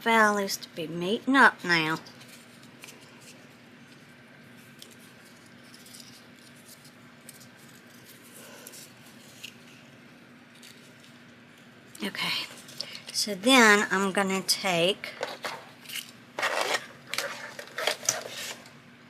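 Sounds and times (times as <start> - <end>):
low steady hum: 0.0 - 19.0
paper rustling and folding: 2.0 - 11.7, 15.1 - 18.7.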